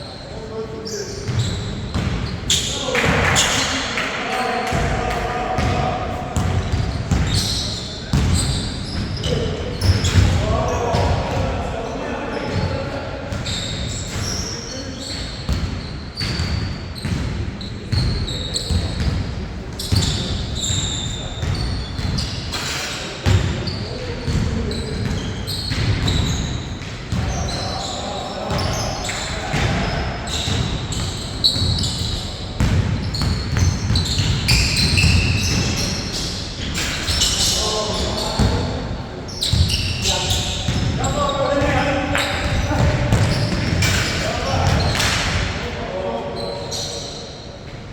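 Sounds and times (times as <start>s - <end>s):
shoe squeaks: 0.0s - 3.8s, 6.4s - 10.4s, 13.3s - 45.0s, 46.2s - 47.8s
players' voices: 0.0s - 16.0s, 17.5s - 47.6s
basketball bouncing: 6.4s - 7.4s, 42.4s - 44.0s.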